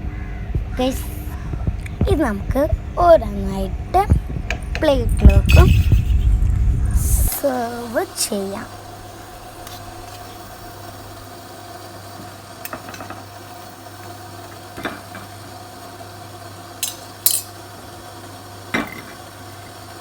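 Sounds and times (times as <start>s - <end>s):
steady low hum: 0.0s - 11.8s
metal utensil clinking on cookware: 16.8s - 17.5s.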